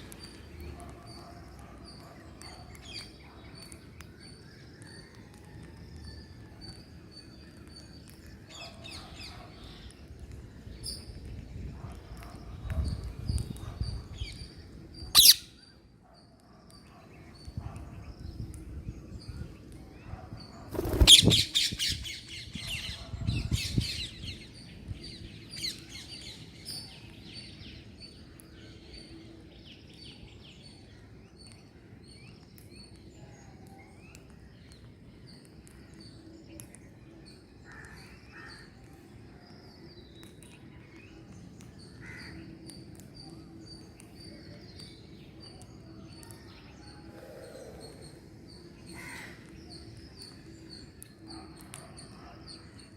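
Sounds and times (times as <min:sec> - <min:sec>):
parrots chirping: 0:15.2 - 0:15.5.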